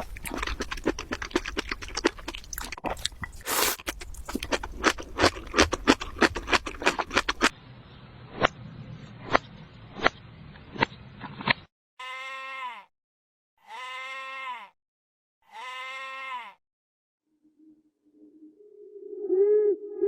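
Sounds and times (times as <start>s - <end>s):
fast crunching clicks: 0.0s - 7.5s.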